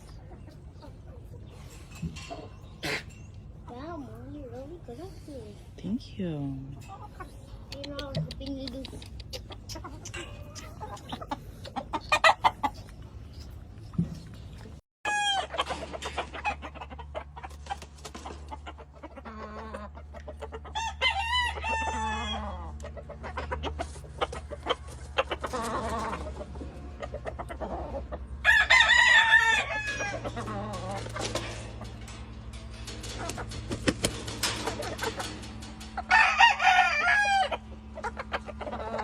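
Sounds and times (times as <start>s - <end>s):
hens clucking: 0.0s - 5.8s, 6.7s - 39.0s
roosters crowing: 15.1s - 17.4s, 19.3s - 39.0s.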